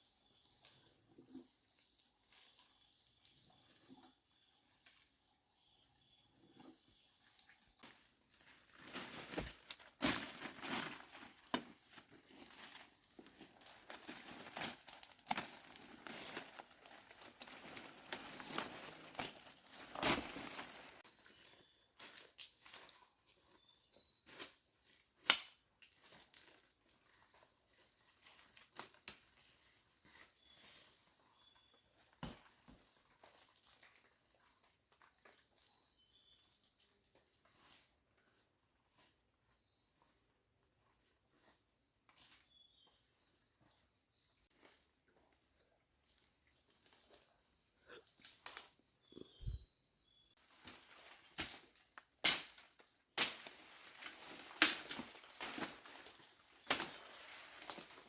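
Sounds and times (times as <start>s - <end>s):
rustling and crackling: 8.4s - 21.1s
high-pitched insect trill: 20.2s - 58.0s.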